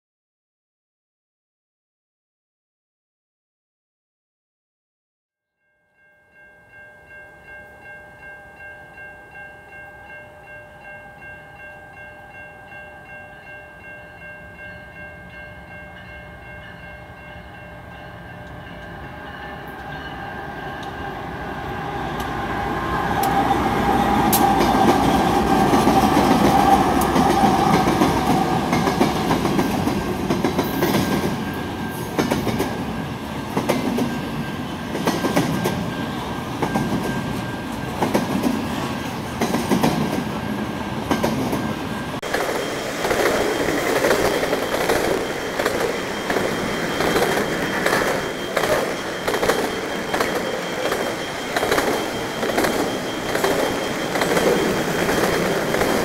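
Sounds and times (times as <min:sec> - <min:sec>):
diesel locomotive engine: 0:17.1 - 0:56.0
freight cars clattering on rails: 0:41.0 - 0:56.0
pulsing ringing tone: 0:41.9 - 0:56.0.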